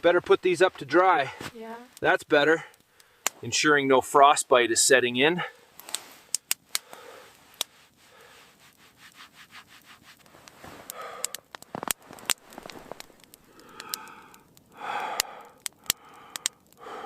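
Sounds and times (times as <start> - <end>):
campfire crackling pops: 0.0 - 17.0
person breathing: 2.6 - 3.4, 5.4 - 8.7, 10.6 - 17.0
hands rubbing together: 7.4 - 11.0.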